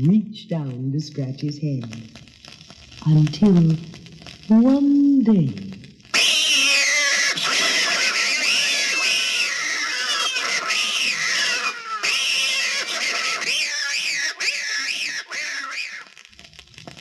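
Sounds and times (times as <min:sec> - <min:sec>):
cats yowling: 0:06.2 - 0:16.2.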